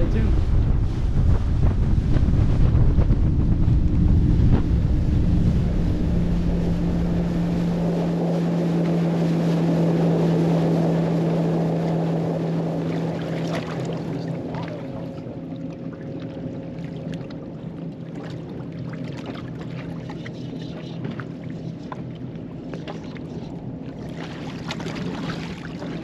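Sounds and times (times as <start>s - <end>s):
wind buffeting microphone: 0.0s - 15.5s
outboard motor running: 0.0s - 26.0s.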